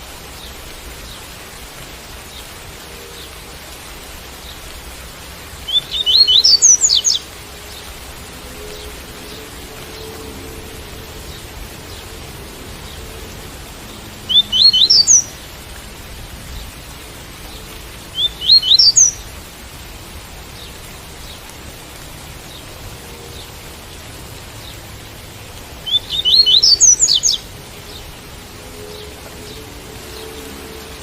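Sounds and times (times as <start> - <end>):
rain pattering: 0.0 - 31.0
bird singing rising notes: 5.6 - 15.6, 18.2 - 19.2, 25.8 - 31.0.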